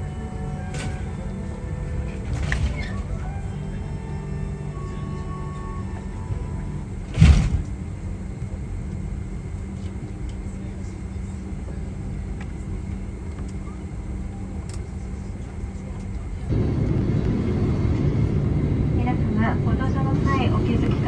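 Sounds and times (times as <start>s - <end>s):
airliner cabin hum: 0.0s - 21.0s
sharp thump: 7.1s - 7.8s.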